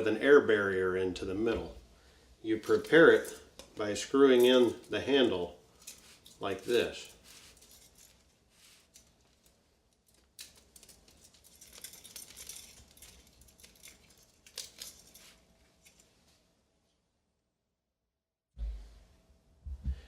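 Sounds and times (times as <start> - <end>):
rustling and scraping: 2.5 - 16.5.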